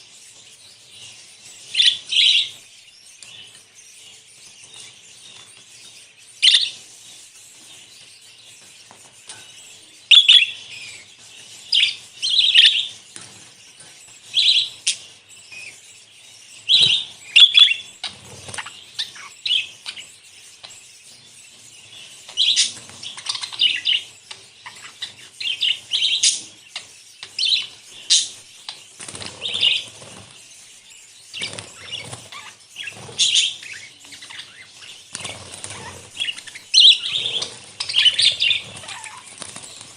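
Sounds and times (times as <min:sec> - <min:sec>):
budgerigars chattering and chirping: 0:00.0 - 0:39.9
wings flapping: 0:35.1 - 0:36.5, 0:37.2 - 0:39.9.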